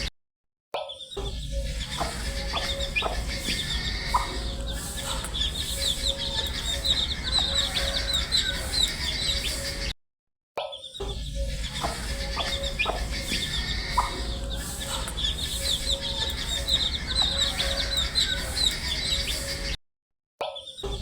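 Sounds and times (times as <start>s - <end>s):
steady low hum: 1.4s - 9.9s, 11.2s - 19.7s
baby chicks peeping: 1.5s - 9.9s, 11.4s - 19.7s.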